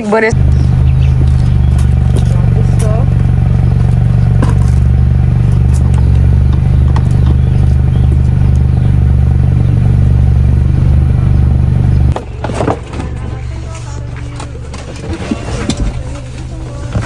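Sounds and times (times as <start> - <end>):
large vehicle engine idling: 0.0 - 17.0.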